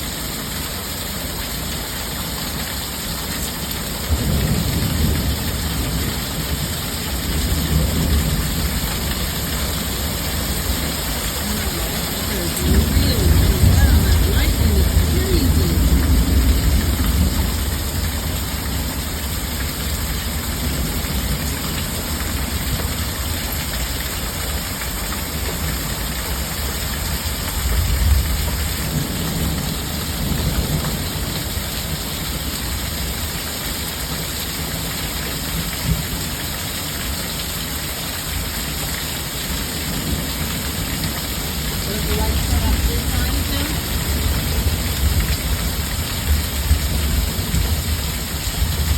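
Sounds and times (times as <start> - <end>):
heavy rain: 0.0 - 48.9
low thunder rumble: 4.1 - 19.0.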